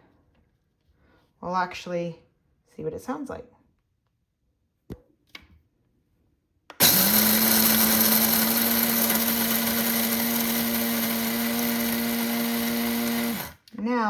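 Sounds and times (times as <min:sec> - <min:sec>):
coffee grinder motor humming: 0:06.8 - 0:13.7.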